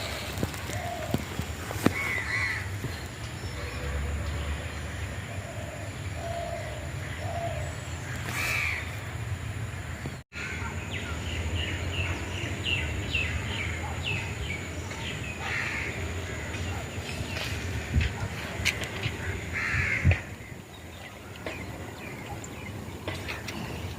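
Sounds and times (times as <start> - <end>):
crows cawing: 1.8 - 2.7, 6.5 - 9.0, 9.8 - 10.7, 15.4 - 16.7, 19.2 - 20.3.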